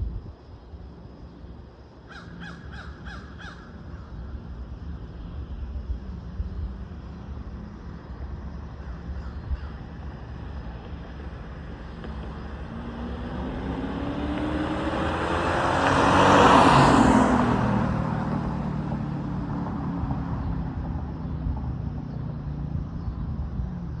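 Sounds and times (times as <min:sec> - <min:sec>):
car exhaust accelerating past: 0:11.2 - 0:22.7.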